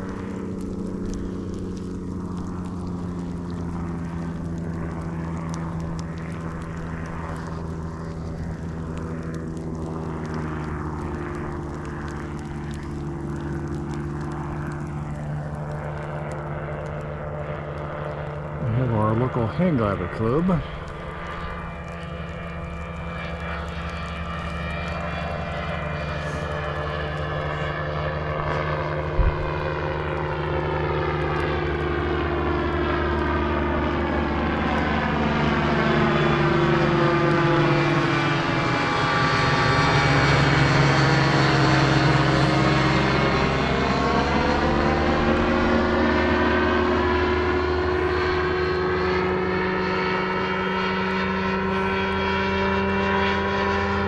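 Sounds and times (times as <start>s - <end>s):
ultralight aircraft flying past: 0.0s - 54.0s.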